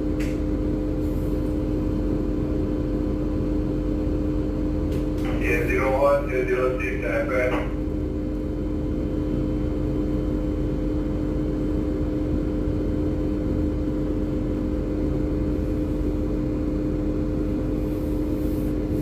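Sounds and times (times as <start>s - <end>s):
diesel engines rumbling: 5.1s - 7.8s.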